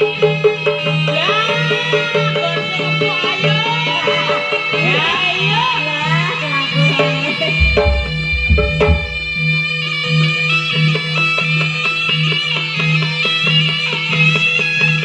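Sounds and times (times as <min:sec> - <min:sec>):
percussion: 0:00.0 - 0:15.0
nasal reed melody: 0:07.6 - 0:09.5
deep drum or gong boom: 0:07.6 - 0:09.6.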